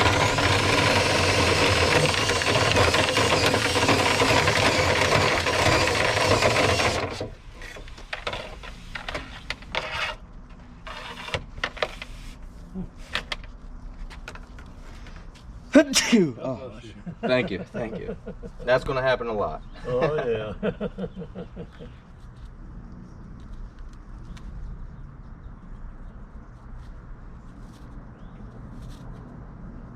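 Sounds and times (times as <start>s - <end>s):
vent cleaning tool motor: 0.0s - 7.3s
rubbing and scraping in duct: 0.0s - 13.1s.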